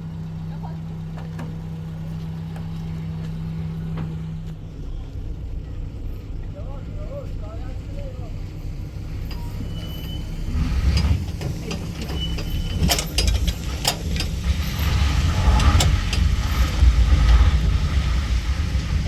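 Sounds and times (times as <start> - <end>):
vehicle engine rumbling: 0.0 - 19.0
sharp clicks and rattles: 10.5 - 19.0.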